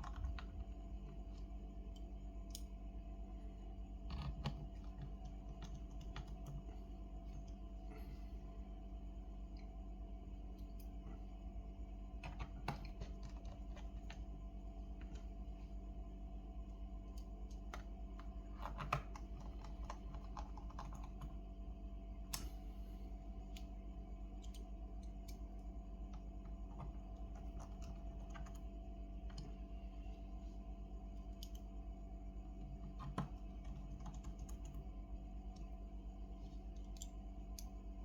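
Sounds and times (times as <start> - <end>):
electrical hum: 0.0 - 38.0.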